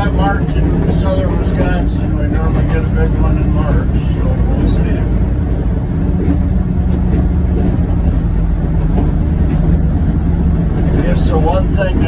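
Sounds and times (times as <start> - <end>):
vehicle engine drone: 0.0 - 12.0.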